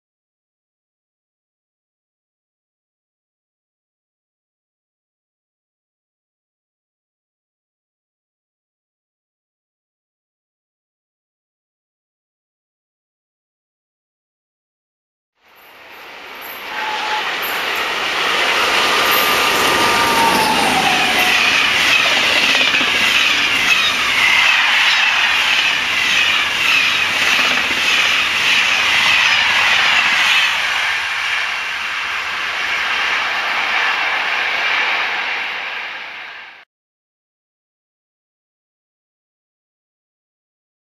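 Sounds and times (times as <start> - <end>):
train rolling rush: 15.5 - 36.6
falling tone: 17.3 - 25.2
train wheels clattering over joints: 18.8 - 30.8.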